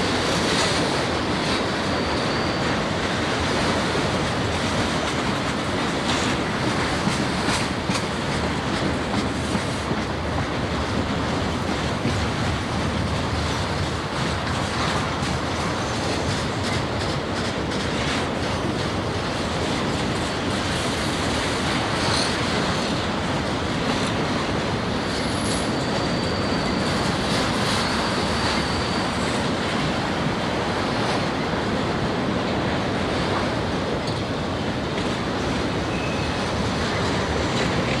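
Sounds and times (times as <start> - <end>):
train wheels rumbling on rails: 0.0 - 38.0
high wheel squeal: 0.8 - 4.1, 24.8 - 29.9, 35.8 - 37.2.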